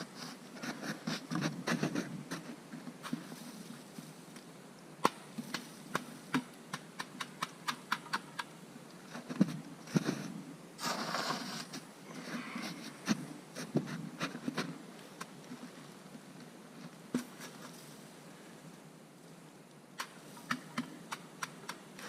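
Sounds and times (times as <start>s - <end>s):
fire crackling and snapping: 3.0s - 9.2s, 18.7s - 22.0s.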